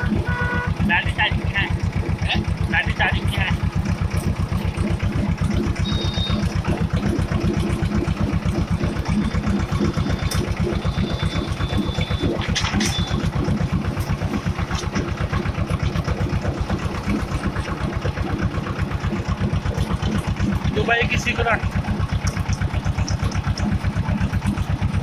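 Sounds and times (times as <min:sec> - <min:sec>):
tractor diesel engine chugging: 0:00.0 - 0:25.0
faint high whistle: 0:05.8 - 0:06.4.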